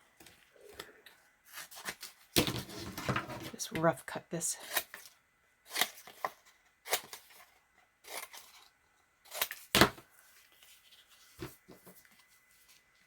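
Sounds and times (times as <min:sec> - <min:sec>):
scissors cutting paper: 0:05.7 - 0:07.4, 0:08.0 - 0:08.6, 0:09.3 - 0:09.7.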